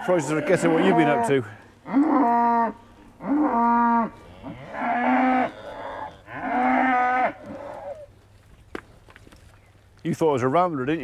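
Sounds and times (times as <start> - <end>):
young cattle mooing: 0.0 - 8.1.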